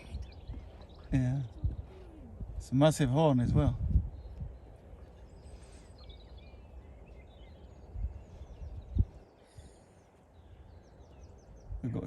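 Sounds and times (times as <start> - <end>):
faint bird chirps: 4.1 - 12.0.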